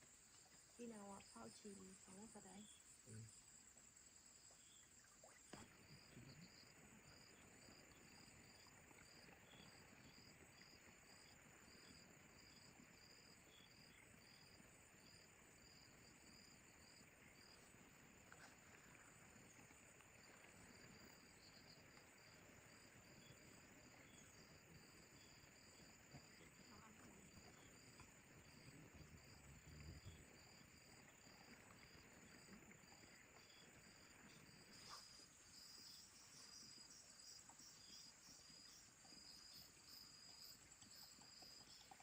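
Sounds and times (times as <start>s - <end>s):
thin high insect drone: 0.0s - 42.0s.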